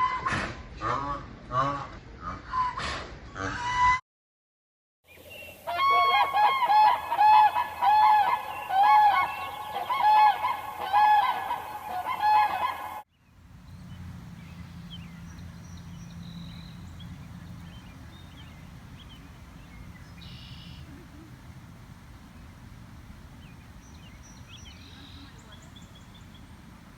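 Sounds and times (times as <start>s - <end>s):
geese honking: 5.7s - 26.9s
faint bird chirps: 13.6s - 26.9s.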